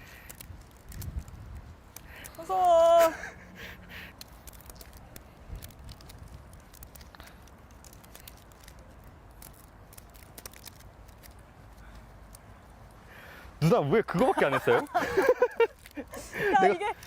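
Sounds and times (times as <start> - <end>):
low wind rumble: 0.0 - 2.3
rubber bands snapping: 4.1 - 13.0.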